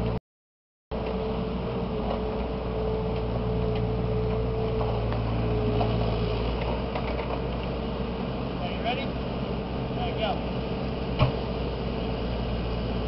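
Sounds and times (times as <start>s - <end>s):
diesel engine running: 0.9s - 13.0s.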